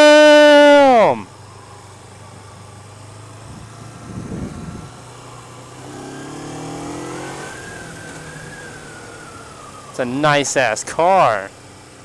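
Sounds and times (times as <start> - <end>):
low engine hum: 1.2 - 12.0
deep engine rumble: 1.3 - 10.0
engine speeding up: 1.4 - 10.6.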